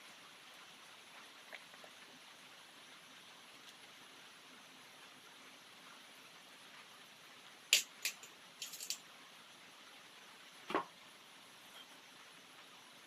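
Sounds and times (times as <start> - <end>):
faint hiss: 0.0 - 13.0
small hard objects clicking: 7.7 - 9.0.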